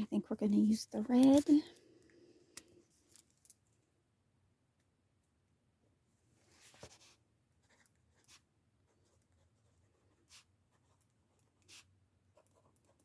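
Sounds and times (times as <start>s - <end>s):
pen scratching on paper: 6.8s - 13.0s.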